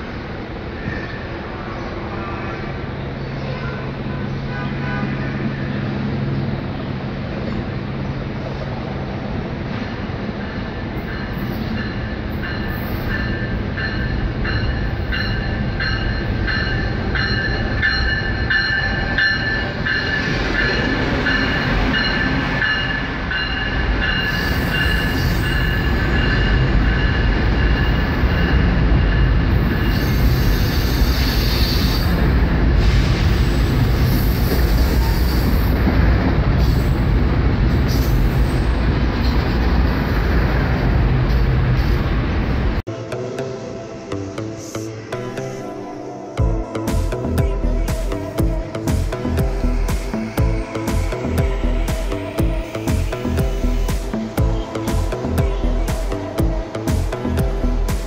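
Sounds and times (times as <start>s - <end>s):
train cars rumbling on rails: 0.0s - 45.0s, 46.1s - 58.0s
train brakes squealing: 0.7s - 6.4s, 9.7s - 35.9s, 36.5s - 37.1s, 37.7s - 40.4s.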